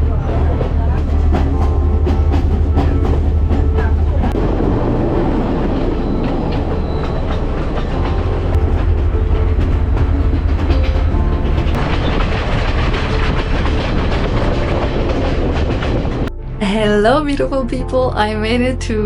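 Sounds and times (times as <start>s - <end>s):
wheels clicking over rail joints: 0.0s - 16.3s
train rumbling: 0.0s - 19.0s.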